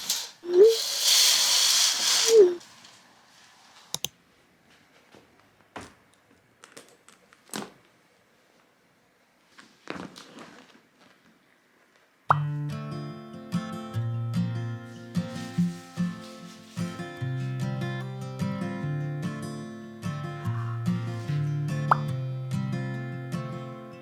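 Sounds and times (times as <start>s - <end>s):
small electric motor whirring: 0.0s - 2.6s.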